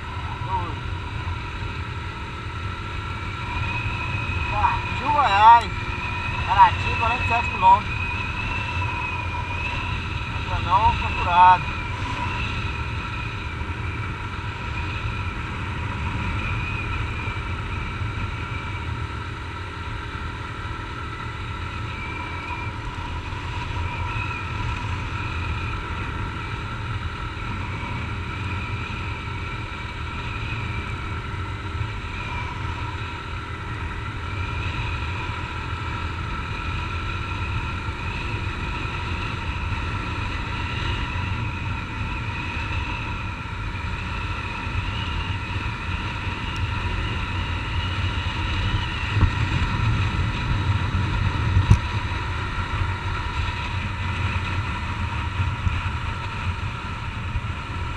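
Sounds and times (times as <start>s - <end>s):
wind rush: 0.0s - 19.8s, 20.6s - 57.9s.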